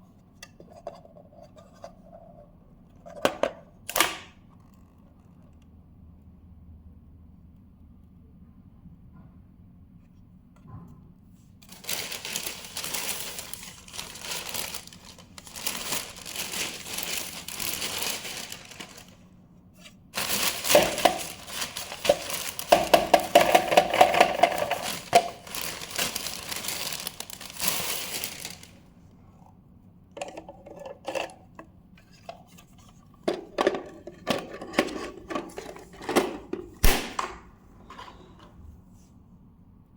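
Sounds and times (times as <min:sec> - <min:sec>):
plastic bin rustling and scraping: 0:11.6 - 0:19.2, 0:19.8 - 0:28.8, 0:32.0 - 0:36.8.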